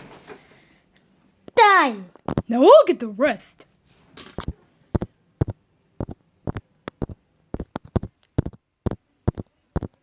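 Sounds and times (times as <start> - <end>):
small hard objects clicking: 4.4 - 10.0.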